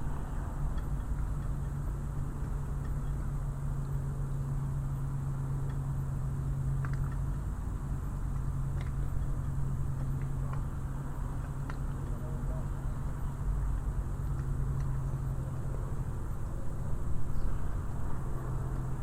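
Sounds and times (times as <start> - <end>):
low engine hum: 0.0 - 19.0
faint clicks and taps: 8.2 - 12.7, 13.7 - 15.2.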